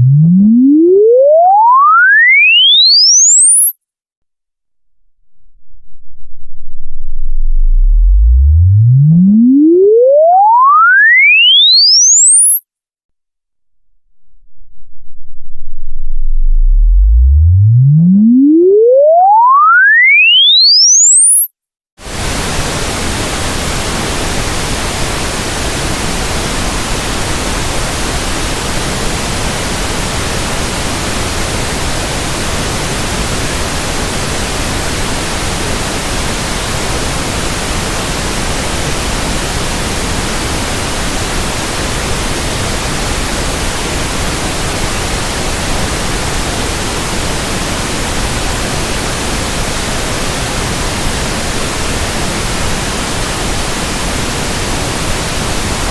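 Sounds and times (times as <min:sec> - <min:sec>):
pink noise hiss: 0:22.0 - 0:55.9.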